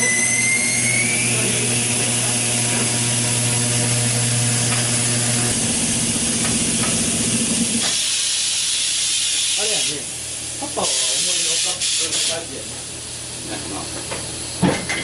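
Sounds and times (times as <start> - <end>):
rising motor whine: 0.0 - 7.8
electric motor humming: 0.0 - 10.0
air hissing: 5.0 - 12.6.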